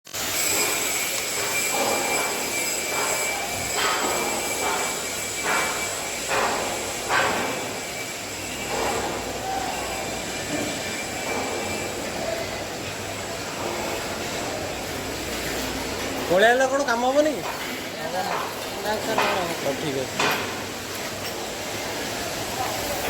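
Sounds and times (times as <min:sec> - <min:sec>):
industrial machinery noise: 0:00.1 - 0:23.0
short clanking or hissing bursts: 0:00.2 - 0:09.4.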